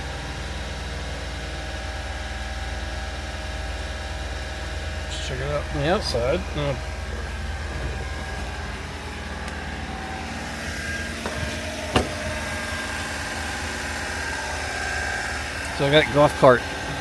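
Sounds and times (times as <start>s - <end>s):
truck engine idling: 0.0s - 17.0s
sharp knock: 11.2s - 12.2s.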